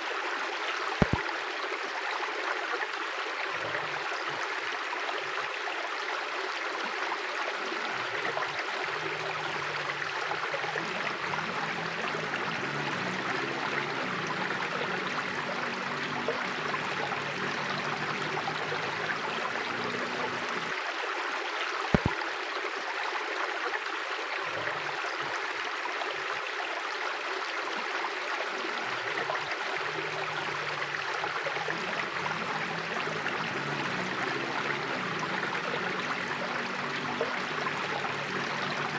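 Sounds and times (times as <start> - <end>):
sharp click: 1.0 - 1.2, 22.0 - 22.2
river water rushing: 3.4 - 21.0, 27.6 - 38.9.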